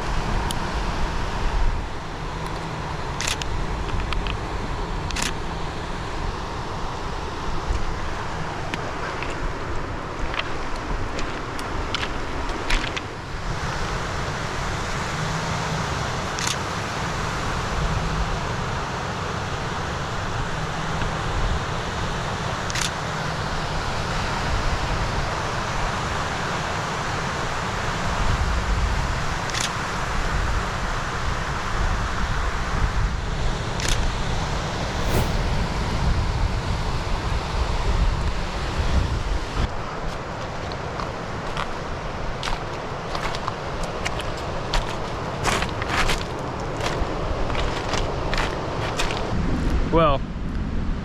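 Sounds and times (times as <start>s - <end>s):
wind buffeting microphone: 34.5s - 37.2s
surf on rocky shore: 34.9s - 36.1s.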